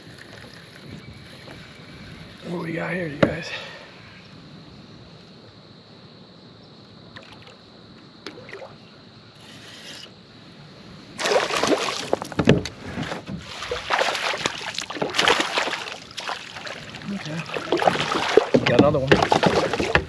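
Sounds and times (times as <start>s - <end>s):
fish splashing at water surface: 11.2s - 20.0s.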